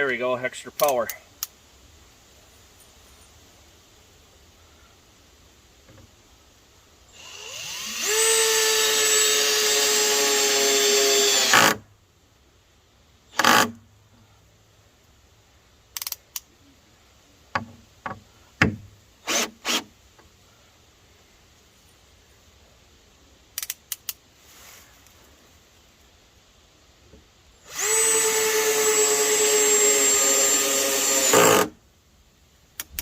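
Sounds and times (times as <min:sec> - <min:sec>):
power drill driving screw: 0:07.2 - 0:11.8, 0:13.4 - 0:13.7, 0:19.2 - 0:19.9, 0:27.7 - 0:31.7.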